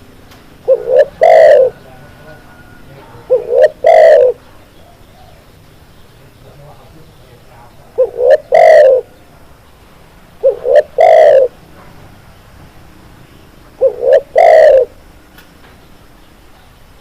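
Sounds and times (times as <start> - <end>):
dove cooing: 0.0 - 5.6, 7.9 - 9.2, 10.4 - 11.6, 13.8 - 15.0.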